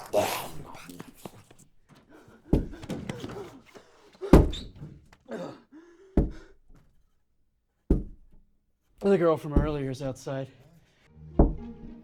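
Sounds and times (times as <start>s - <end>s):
heavy thuds: 2.4s - 3.6s, 6.2s - 6.6s, 7.9s - 8.4s, 9.5s - 10.0s, 11.4s - 11.8s.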